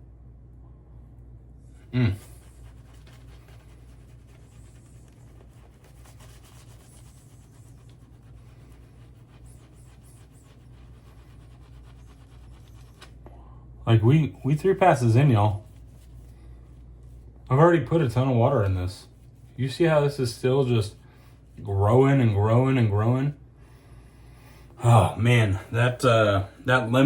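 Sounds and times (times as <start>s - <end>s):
short vocal sound: 1.8s - 2.5s
shaving brush swishing lather: 1.8s - 13.2s, 14.4s - 23.0s.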